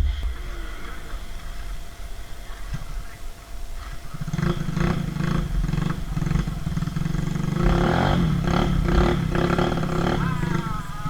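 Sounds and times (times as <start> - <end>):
motorcycle engine revving hard: 3.7 - 11.0.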